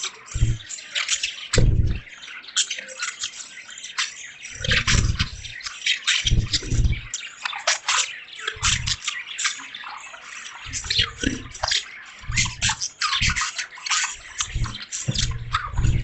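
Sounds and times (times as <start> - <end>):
budgies chirping: 0.0 - 16.0
short low bursts: 1.6 - 2.0
water dripping: 10.6 - 13.6, 14.2 - 16.0.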